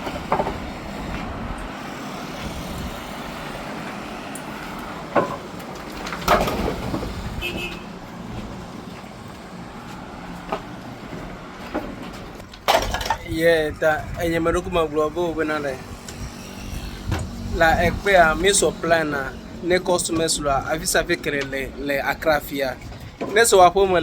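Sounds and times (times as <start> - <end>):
truck engine and road rumble: 0.0 - 24.0.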